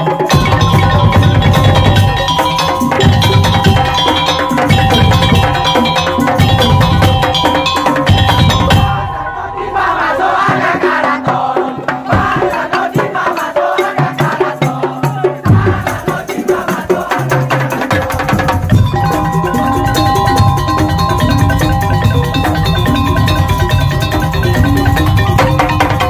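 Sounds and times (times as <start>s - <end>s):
fast loud percussion ensemble: 0.0s - 26.0s
held pitched notes: 0.3s - 11.3s, 18.7s - 26.0s.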